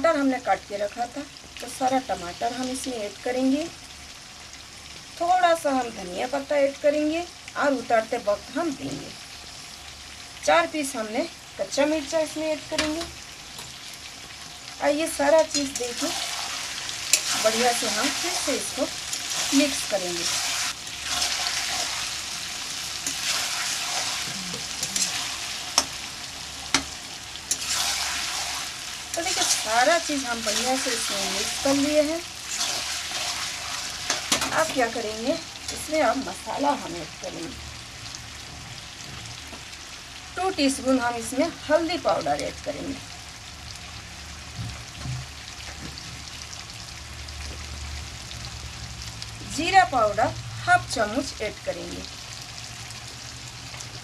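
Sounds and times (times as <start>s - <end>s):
food sizzling in a pan: 0.0s - 54.0s
metal utensil scraping pan: 17.0s - 18.5s, 23.0s - 26.0s, 26.7s - 29.8s, 32.5s - 34.8s.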